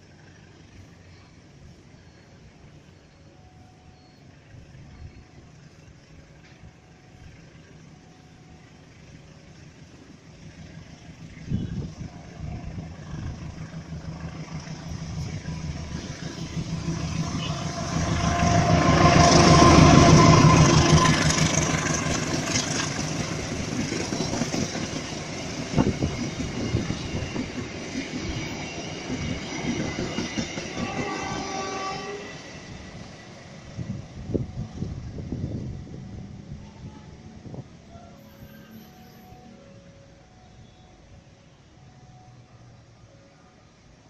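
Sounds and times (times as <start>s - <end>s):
train engine and wheel rumble: 0.0s - 44.0s
train horn chord: 17.0s - 22.0s, 30.7s - 32.5s.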